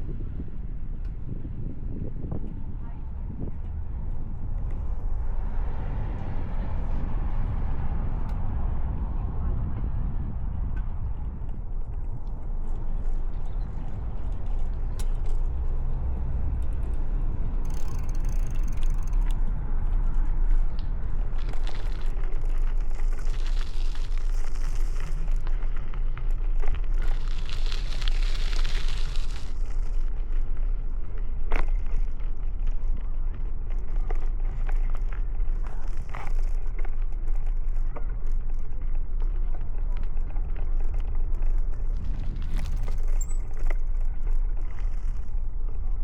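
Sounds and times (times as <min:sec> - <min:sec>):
low riding rumble: 0:00.0 - 0:46.0
bicycle clicks and rattles: 0:11.5 - 0:46.0
bicycle freewheel clicking: 0:17.6 - 0:19.4, 0:27.0 - 0:29.9
sharp ticks: 0:17.7 - 0:19.4.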